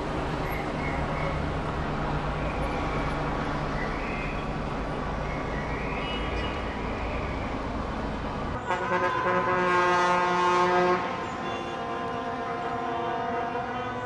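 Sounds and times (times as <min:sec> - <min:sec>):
road vehicle noise: 0:00.0 - 0:14.0
vehicle horn chord: 0:08.6 - 0:14.0.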